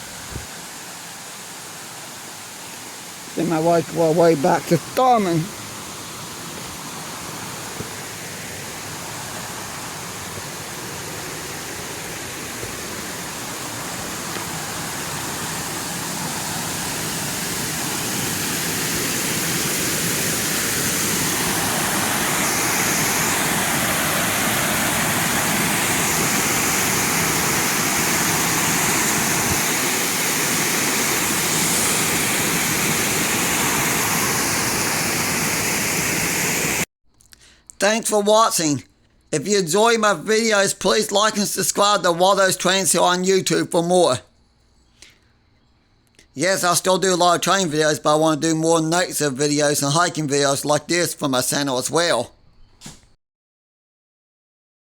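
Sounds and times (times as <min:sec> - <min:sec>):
waterfall rushing: 0:00.0 - 0:36.8.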